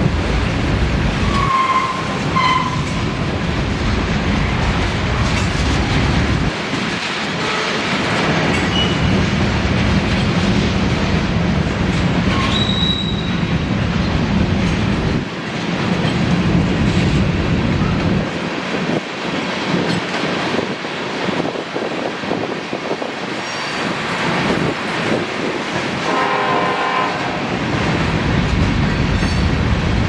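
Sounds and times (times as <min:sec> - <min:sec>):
freight train wheels rumbling: 0:00.0 - 0:30.0
high wheel squeal: 0:01.3 - 0:02.9, 0:12.3 - 0:13.4.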